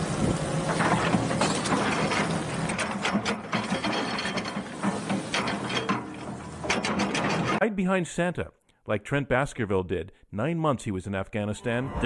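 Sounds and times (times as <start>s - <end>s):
bucket rattling and clanking: 0.6s - 7.6s.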